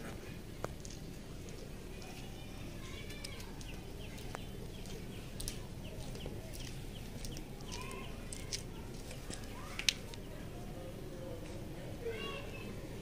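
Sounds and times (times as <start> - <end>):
birds chirping: 1.6 - 10.8.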